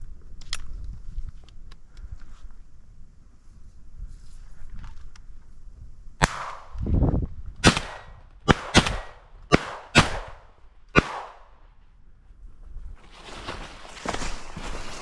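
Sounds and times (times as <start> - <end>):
distant shotgun fire: 6.2 - 6.8, 7.6 - 11.5.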